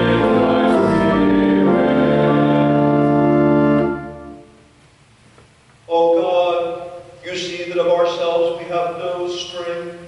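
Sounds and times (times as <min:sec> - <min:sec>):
church organ chords: 0:00.0 - 0:04.7.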